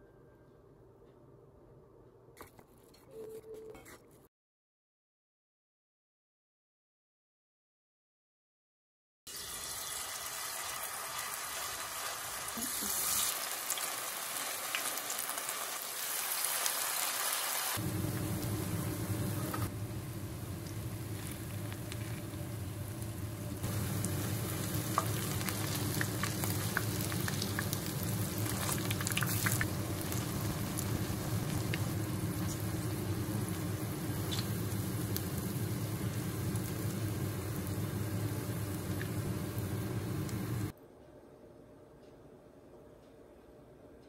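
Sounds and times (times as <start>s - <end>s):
fritters sizzling in hot oil: 9.3s - 40.7s.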